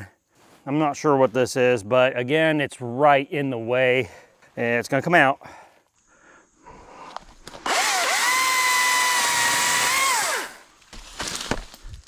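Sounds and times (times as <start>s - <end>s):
electric chainsaw motor whine: 7.4s - 10.7s.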